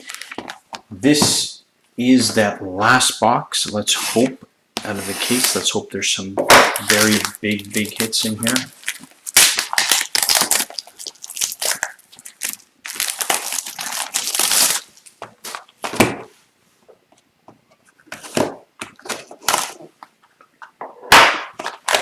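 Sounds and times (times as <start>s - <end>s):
plastic wrap tearing and crinkling: 0.0s - 0.6s, 6.5s - 15.7s, 21.5s - 22.0s.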